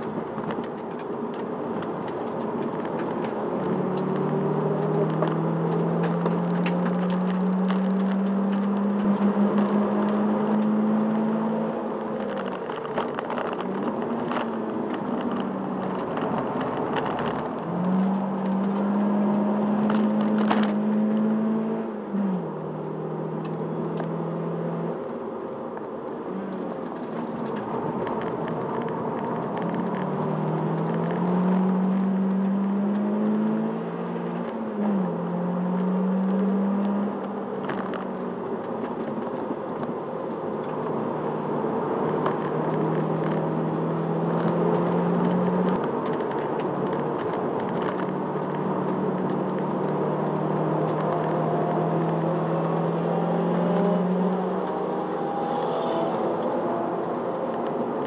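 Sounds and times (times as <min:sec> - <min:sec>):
car engine accelerating: 0:00.0 - 0:25.2, 0:26.2 - 0:58.0
road and wind noise: 0:00.0 - 0:58.0.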